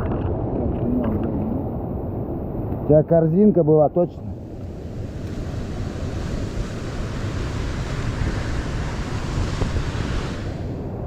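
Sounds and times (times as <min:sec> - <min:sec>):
wind buffeting microphone: 0:04.2 - 0:11.0.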